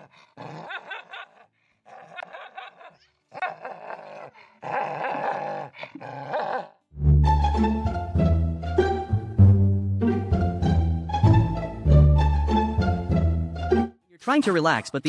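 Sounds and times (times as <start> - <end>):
dog growling and barking: 0.0 - 6.8
plucked string music: 7.0 - 14.0.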